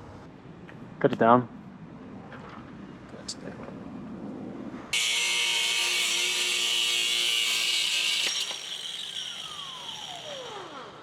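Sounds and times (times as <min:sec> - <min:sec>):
angle grinder cutting steel: 0:05.0 - 0:11.0
grinder disc spinning down: 0:05.0 - 0:11.0.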